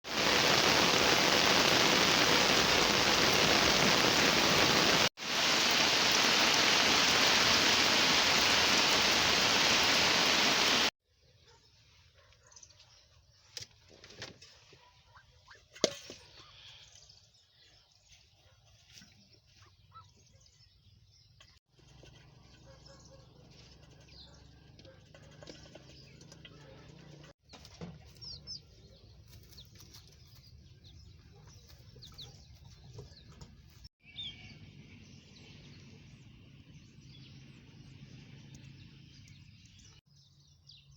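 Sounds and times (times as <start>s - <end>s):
heavy rain hissing: 0.0s - 10.9s.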